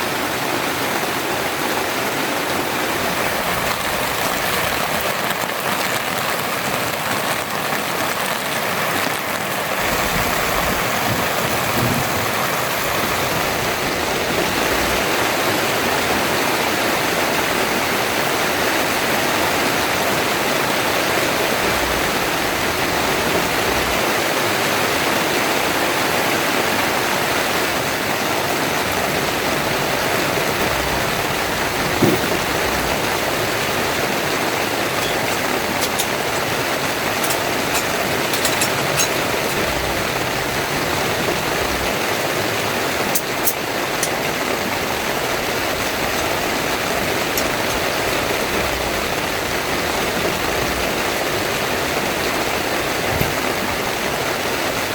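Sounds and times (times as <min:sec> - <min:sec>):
heavy rain pouring: 0:00.0 - 0:54.9
short thump: 0:31.9 - 0:32.7.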